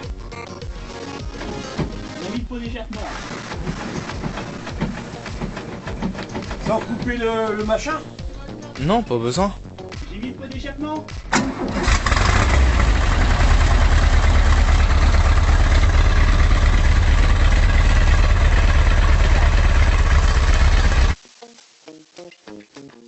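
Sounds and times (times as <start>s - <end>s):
van engine running: 3.1s - 7.2s, 11.3s - 21.2s.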